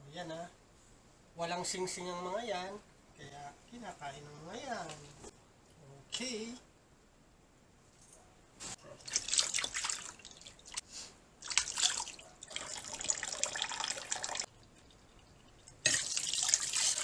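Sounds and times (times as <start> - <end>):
water splashing into a sink: 9.0 - 10.8, 11.4 - 17.0.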